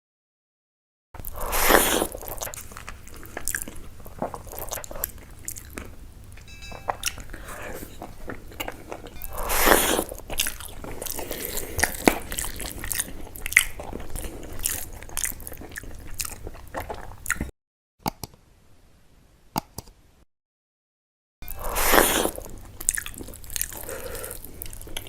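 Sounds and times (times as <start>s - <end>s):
chewing and crunching food: 1.2s - 17.5s, 21.6s - 25.0s.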